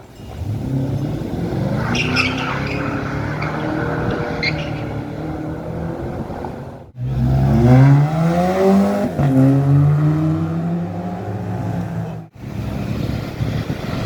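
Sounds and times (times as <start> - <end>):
car accelerating hard: 0.0 - 14.0
car engine running: 0.1 - 7.2.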